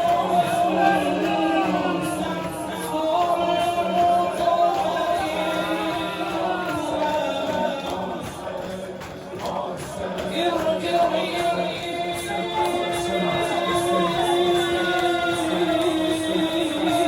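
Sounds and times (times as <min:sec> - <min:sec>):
man singing a mourning chant: 0:00.0 - 0:17.0.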